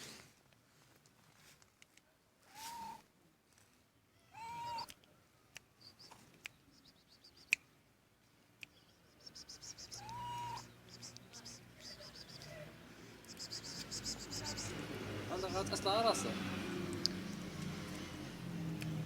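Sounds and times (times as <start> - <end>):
cat meowing: 4.2 - 4.9, 10.0 - 10.7
fast light ticks: 16.9 - 18.1.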